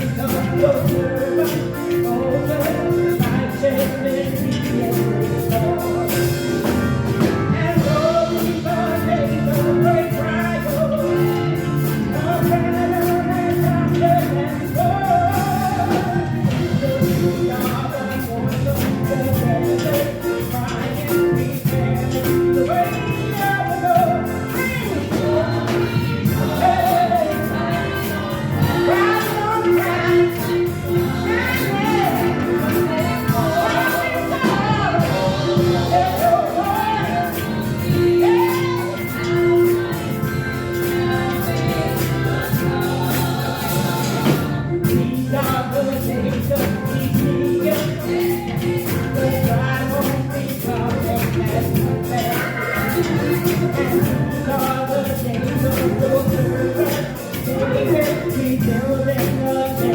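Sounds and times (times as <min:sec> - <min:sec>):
church band playing: 0:00.0 - 0:59.9
people singing: 0:00.0 - 0:59.9
steady drum beat: 0:00.0 - 0:59.9.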